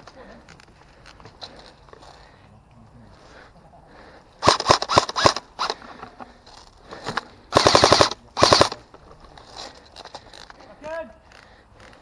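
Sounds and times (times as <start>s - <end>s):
airsoft rifles firing: 4.4s - 5.8s, 7.5s - 8.8s.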